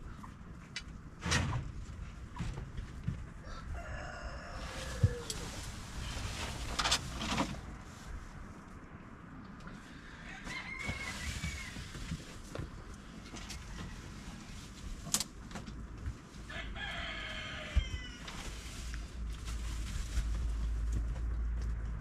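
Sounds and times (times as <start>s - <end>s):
rooster crowing: 3.4s - 5.5s, 10.0s - 12.0s, 16.5s - 18.3s.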